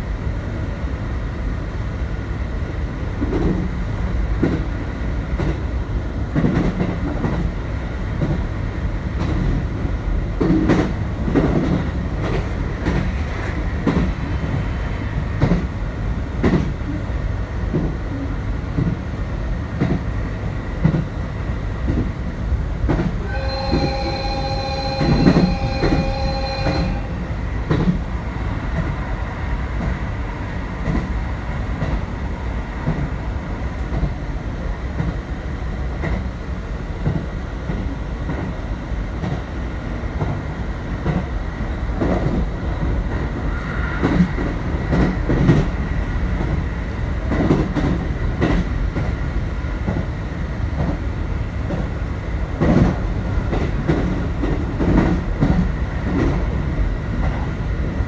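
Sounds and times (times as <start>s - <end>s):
train running rumble: 0.0s - 58.0s
high squeal: 23.2s - 27.5s.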